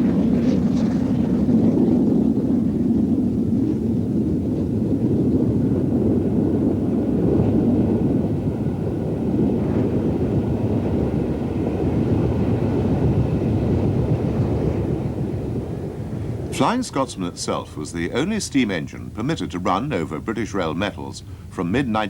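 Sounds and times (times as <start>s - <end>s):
wind on microphone: 0.0s - 21.5s
steam train rumbling by: 5.5s - 22.0s.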